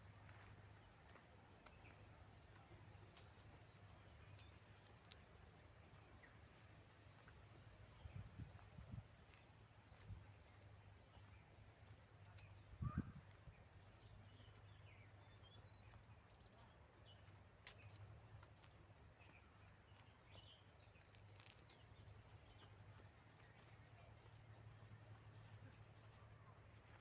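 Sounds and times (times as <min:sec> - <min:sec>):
faint bird chirps: 0:12.3 - 0:16.6.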